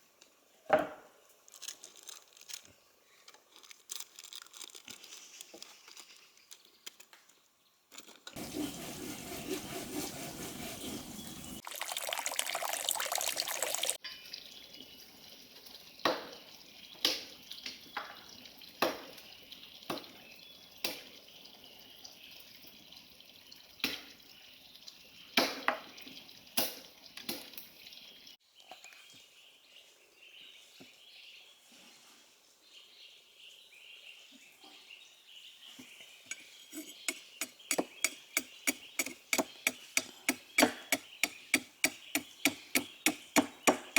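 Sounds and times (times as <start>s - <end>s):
water pouring: 8.4s - 17.4s.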